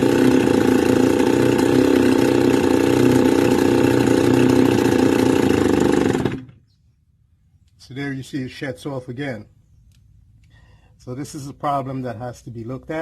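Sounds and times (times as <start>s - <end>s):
brush cutter engine idling: 0.0s - 6.6s.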